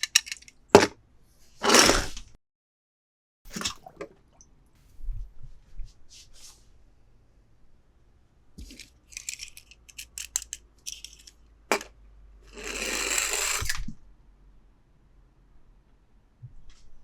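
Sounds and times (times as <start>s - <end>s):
rasping scraping sound: 12.5s - 13.8s.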